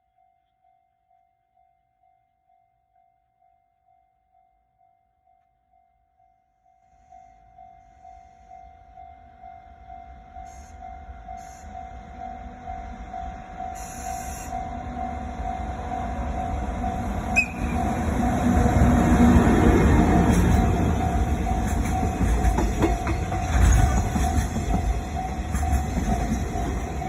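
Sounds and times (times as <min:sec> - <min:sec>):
level-crossing alarm bell: 0:04.0 - 0:27.0
train rumble: 0:08.7 - 0:27.0.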